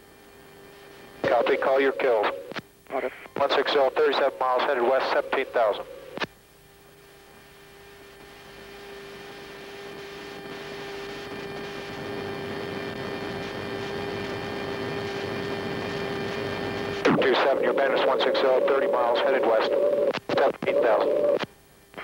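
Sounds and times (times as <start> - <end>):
jet aircraft noise: 1.2 - 6.2, 17.1 - 21.4.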